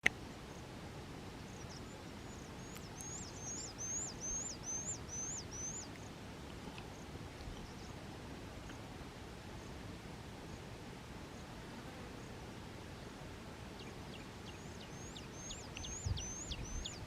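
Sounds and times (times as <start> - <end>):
steady background noise: 0.0 - 17.0
songbird whistling notes: 1.5 - 6.0, 14.1 - 17.0.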